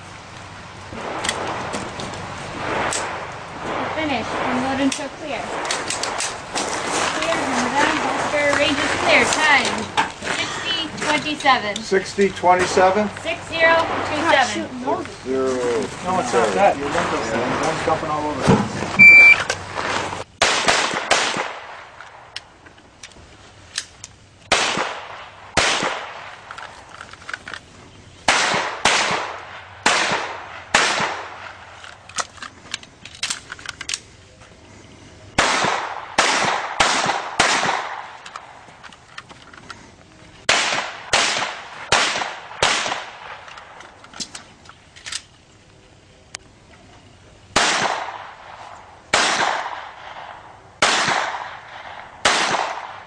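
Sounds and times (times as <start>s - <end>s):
pistol shots with echo: 20.4s - 21.9s, 24.5s - 26.3s, 28.3s - 31.5s, 35.4s - 38.2s, 40.5s - 43.4s, 47.6s - 48.4s, 49.1s - 53.0s.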